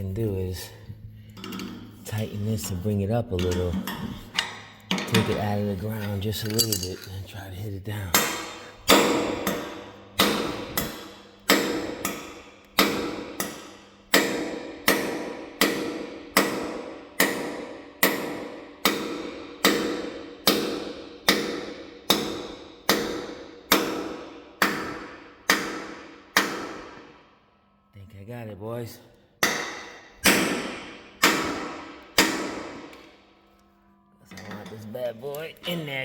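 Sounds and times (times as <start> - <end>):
hammer striking metal bolt: 3.4 - 5.6, 6.4 - 7.1, 8.1 - 27.2, 29.4 - 33.2.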